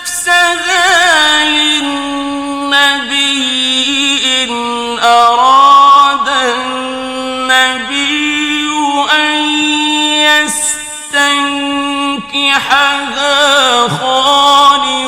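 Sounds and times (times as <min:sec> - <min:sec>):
man reciting in melodic chant: 0:00.0 - 0:15.0.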